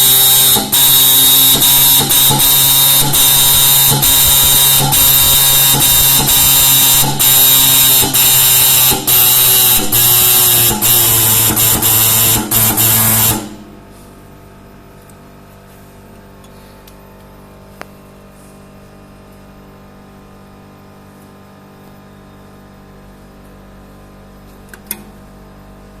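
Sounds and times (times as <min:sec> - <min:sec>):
marking machine stylus buzzing: 0:00.0 - 0:13.6.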